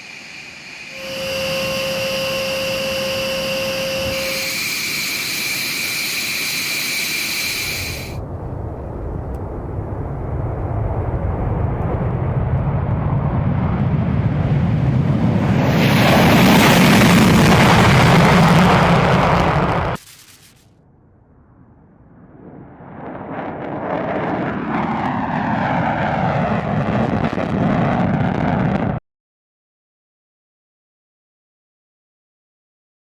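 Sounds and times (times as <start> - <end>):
jet engines whining: 0.0 - 8.2, 13.7 - 20.4
jet engine low rumble: 0.0 - 29.0.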